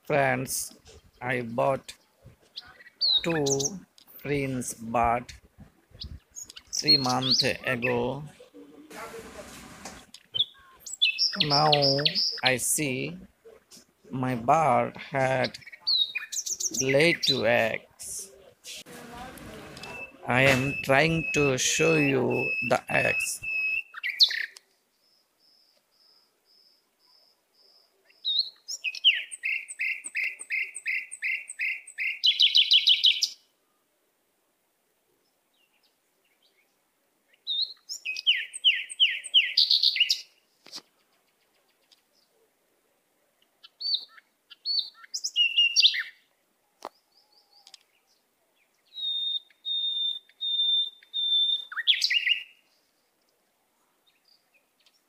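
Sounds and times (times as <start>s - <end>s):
cage birds chirping and trilling: 0.1s - 13.3s, 14.2s - 18.5s, 19.8s - 33.5s, 35.5s - 42.4s, 43.6s - 55.0s.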